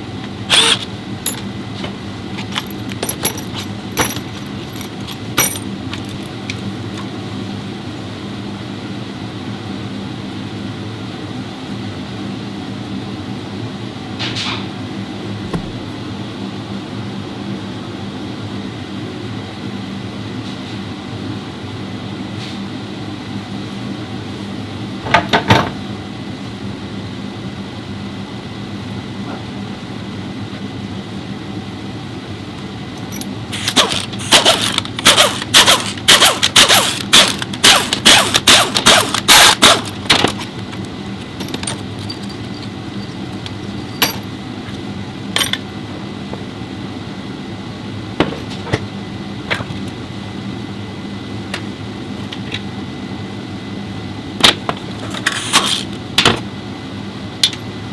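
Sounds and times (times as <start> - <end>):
steady hum: 15.0 - 16.9.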